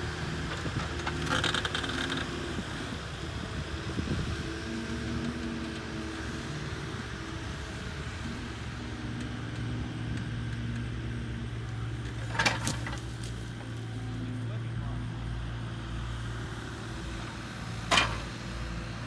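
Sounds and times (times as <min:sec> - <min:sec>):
diesel engine running: 0:00.0 - 0:19.0
sharp clatter of knocks: 0:17.9 - 0:18.4.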